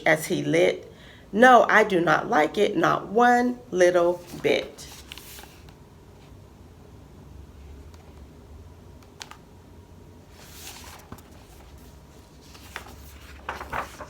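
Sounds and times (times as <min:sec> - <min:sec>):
low room hum: 0:00.0 - 0:14.0
book page turning: 0:04.2 - 0:05.8, 0:10.3 - 0:14.0.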